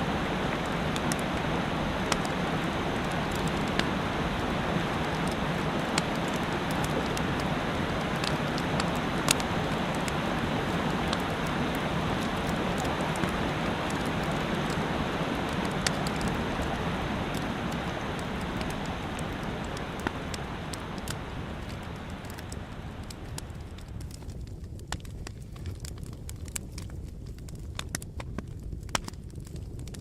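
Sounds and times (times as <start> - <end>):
mountain stream rushing: 0.0 - 23.8
campfire crackling: 0.0 - 30.0.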